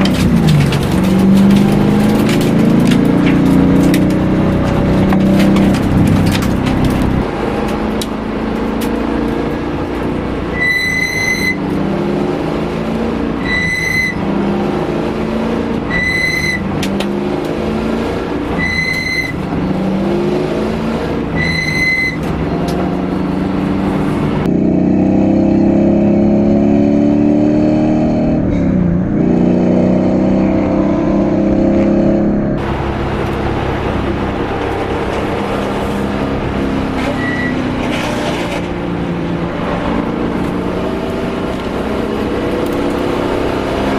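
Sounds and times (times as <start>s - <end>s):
race car engine revving: 0.0s - 43.9s
short high beep: 10.5s - 11.6s, 13.4s - 14.2s, 15.9s - 16.6s, 18.6s - 19.4s, 21.4s - 22.2s, 37.1s - 37.6s.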